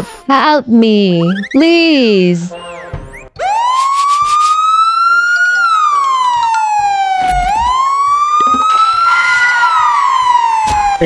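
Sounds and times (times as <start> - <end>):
wailing siren: 2.4 - 11.0.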